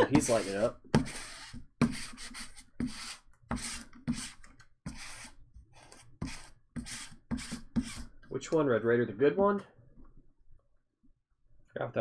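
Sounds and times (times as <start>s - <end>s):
cards sliding and rubbing: 0.0s - 8.2s.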